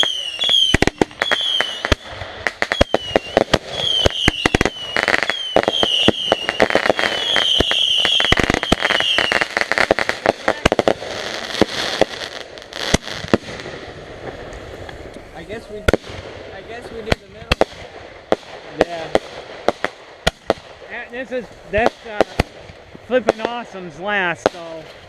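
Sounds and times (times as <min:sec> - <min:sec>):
firework whistles dipping in pitch: 0:00.0 - 0:02.0, 0:02.7 - 0:09.4
firework bangs and crackles: 0:00.0 - 0:25.0.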